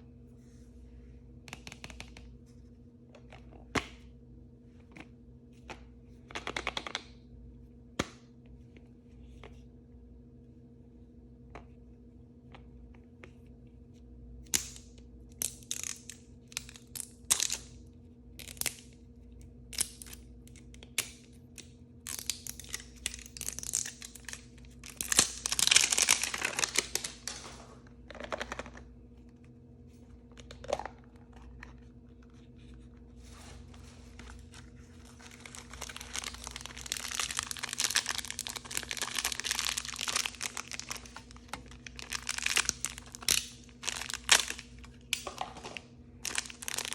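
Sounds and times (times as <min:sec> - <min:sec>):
plastic packaging crinkling: 0:22.1 - 0:28.8, 0:30.3 - 0:46.9.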